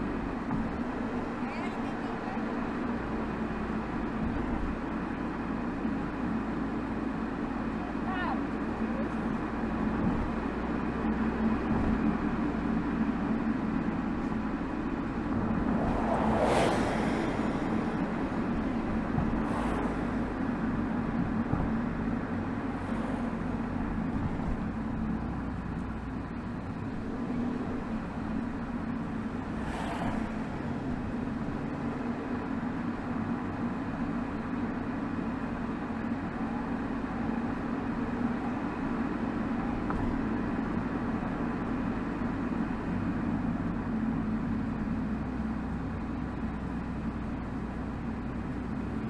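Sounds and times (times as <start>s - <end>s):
car exhaust cruising: 0.0s - 49.0s
road and tyre noise: 0.0s - 49.0s
whooshes of passing vehicles: 9.4s - 33.3s.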